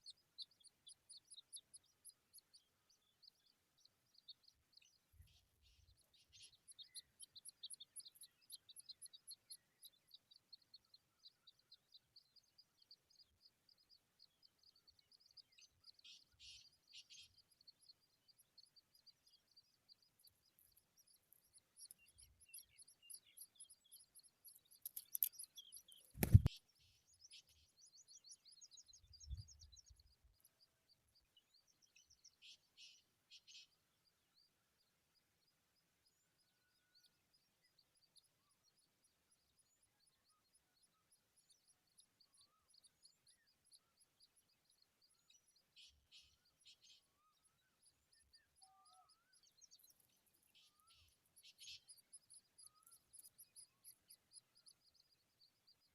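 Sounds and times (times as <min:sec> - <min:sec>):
small birds chirping: 0:00.0 - 0:55.9
high bird chirps: 0:21.8 - 0:26.6.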